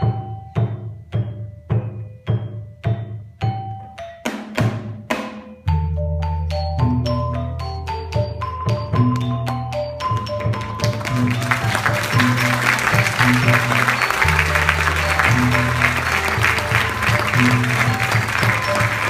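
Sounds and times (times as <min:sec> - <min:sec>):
instrumental music with low notes: 0:00.0 - 0:19.0
audience applause: 0:10.4 - 0:19.0.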